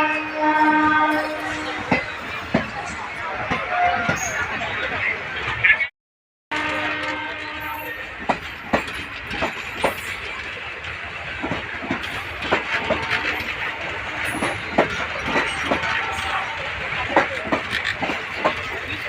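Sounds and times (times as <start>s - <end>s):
train wheels rumbling: 6.6s - 19.0s
wheels clacking on rail joints: 6.6s - 19.0s.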